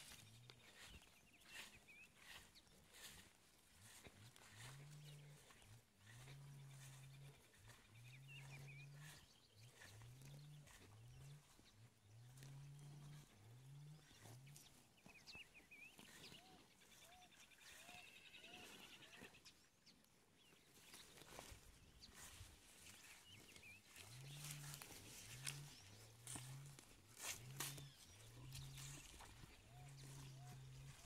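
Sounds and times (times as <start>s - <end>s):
faint low animal calls: 0.0s - 19.9s, 21.1s - 31.0s.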